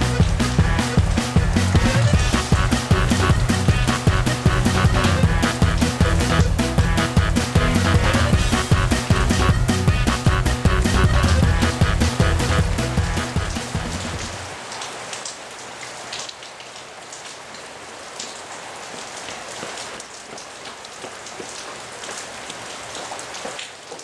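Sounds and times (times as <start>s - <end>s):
music: 0.0s - 14.4s
raindrops ticking: 0.0s - 24.0s
steady rain falling: 0.0s - 24.0s.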